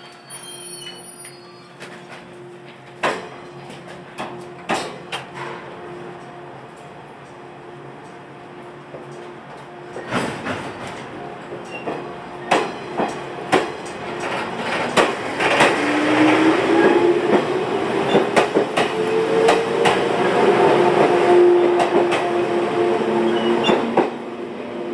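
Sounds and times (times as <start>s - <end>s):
train wheels clacking over rail joints: 10.0s - 20.1s.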